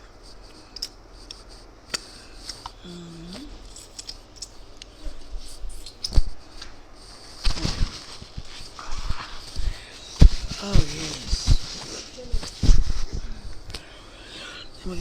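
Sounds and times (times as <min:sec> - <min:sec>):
person humming: 0:02.8 - 0:03.6, 0:10.4 - 0:12.5.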